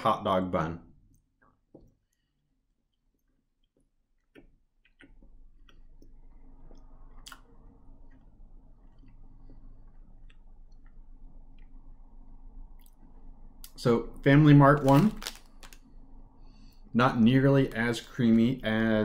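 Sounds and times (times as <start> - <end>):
person chewing with wet mouth clicks: 2.9 - 11.8.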